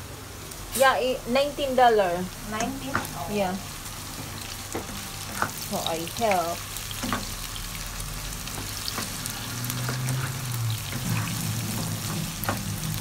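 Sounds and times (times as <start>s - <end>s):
food sizzling in oil: 0.4s - 13.0s.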